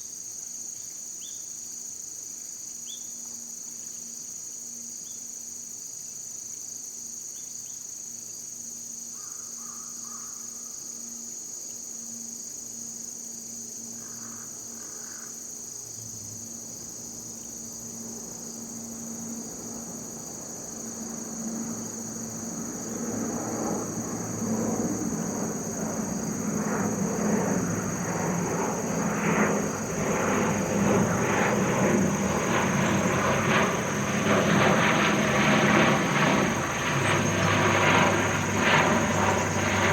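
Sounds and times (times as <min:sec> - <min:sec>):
insects chirping: 0:00.0 - 0:39.9
engine: 0:29.0 - 0:39.9.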